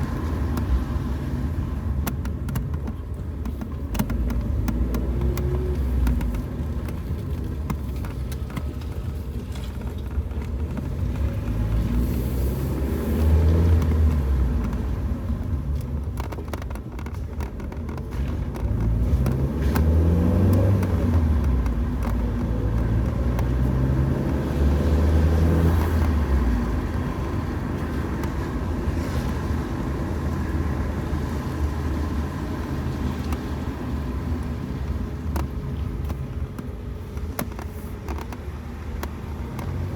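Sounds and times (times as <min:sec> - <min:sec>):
rain ticking on a car: 0:00.0 - 0:39.9
tyre and road noise: 0:00.0 - 0:39.9
car engine accelerating: 0:10.3 - 0:16.2, 0:18.0 - 0:39.9.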